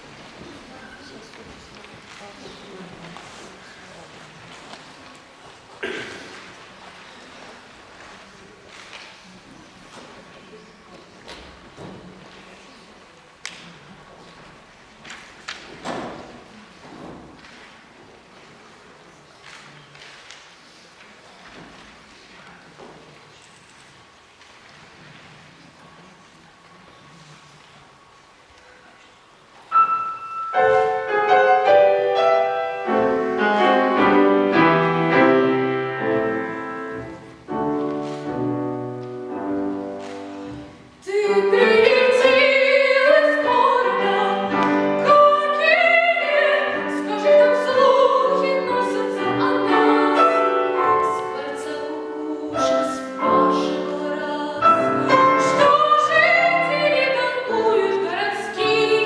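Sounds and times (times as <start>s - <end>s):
piano chords: 29.7s - 59.0s
child singing with vibrato: 41.0s - 59.0s.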